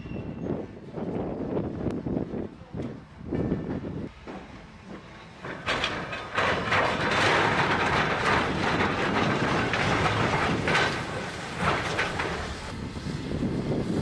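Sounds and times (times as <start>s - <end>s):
train wheels clattering: 4.1s - 12.8s.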